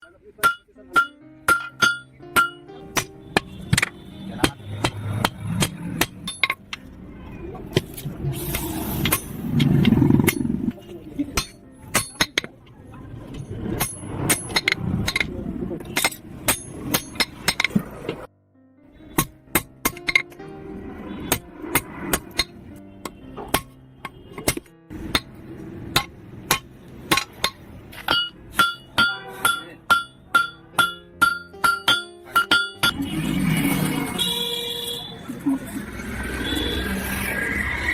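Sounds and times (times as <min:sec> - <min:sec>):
hammer striking steel rod: 0:00.0 - 0:06.9, 0:07.7 - 0:10.6, 0:11.3 - 0:12.6, 0:13.6 - 0:17.8, 0:19.1 - 0:20.4, 0:21.2 - 0:33.1.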